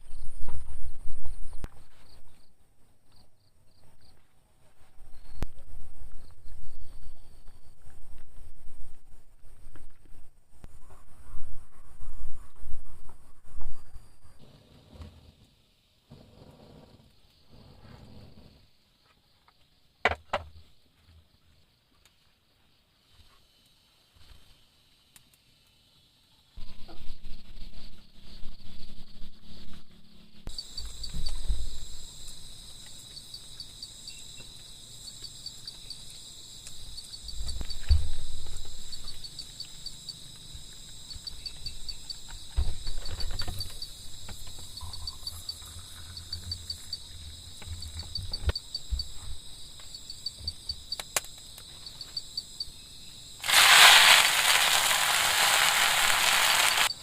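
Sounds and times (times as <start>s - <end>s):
crickets chirping: 0.0s - 4.3s, 13.6s - 57.0s
loud steady hiss: 53.2s - 57.0s.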